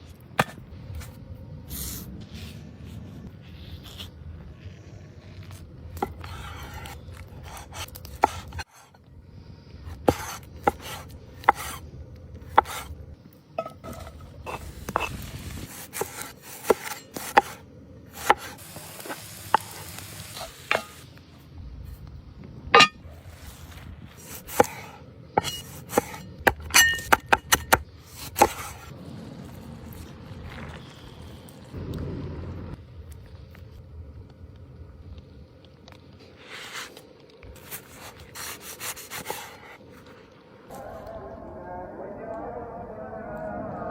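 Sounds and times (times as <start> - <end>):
cookware and utensils clinking: 22.7 - 23.0, 25.4 - 27.8.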